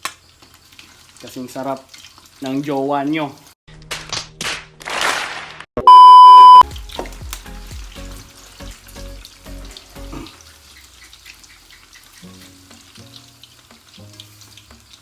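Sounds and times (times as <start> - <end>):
food frying in hot oil: 0.0 - 3.6, 6.6 - 15.0
loud beep tone: 5.8 - 6.6
music with bass beat: 6.6 - 10.3.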